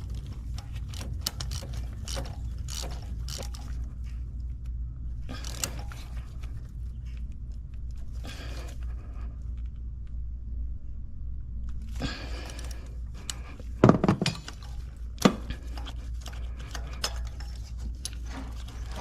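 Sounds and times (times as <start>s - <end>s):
metal tool clinks and knocks: 13.8s - 19.0s.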